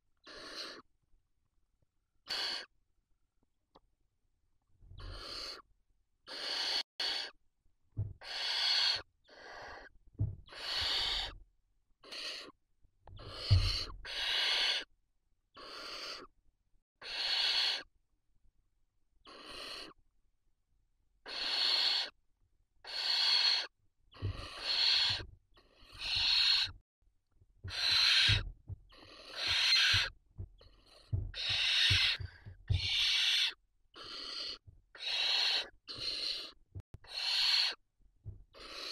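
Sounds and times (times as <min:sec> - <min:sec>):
owl chicks hissing: 0:00.2 - 0:00.9, 0:02.2 - 0:02.7, 0:05.0 - 0:05.7, 0:06.3 - 0:07.4, 0:08.2 - 0:11.4, 0:12.0 - 0:12.6, 0:13.2 - 0:14.9, 0:15.5 - 0:16.3, 0:17.0 - 0:17.9, 0:19.2 - 0:20.0, 0:21.2 - 0:22.2, 0:22.8 - 0:26.8, 0:27.7 - 0:37.8, 0:38.5 - 0:38.9
soft low thumps: 0:08.0 - 0:08.2, 0:10.2 - 0:11.2, 0:13.1 - 0:13.9, 0:27.4 - 0:33.2, 0:38.2 - 0:38.6.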